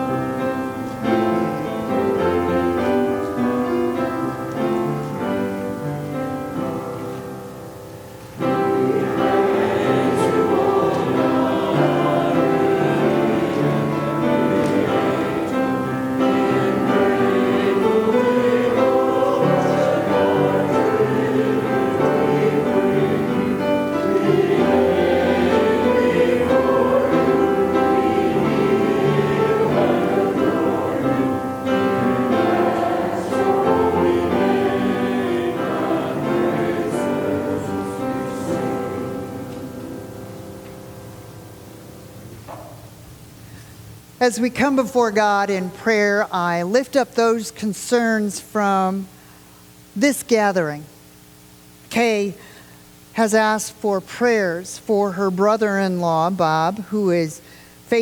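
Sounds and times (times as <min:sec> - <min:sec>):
choir singing a hymn: 0:00.0 - 0:42.7
piano playing: 0:00.0 - 0:43.4.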